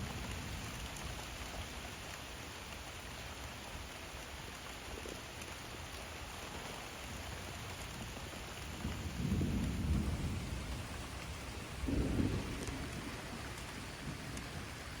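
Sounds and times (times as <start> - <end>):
thunder rumbling: 0.0 - 1.9, 7.2 - 15.0
steady rain: 0.0 - 15.0.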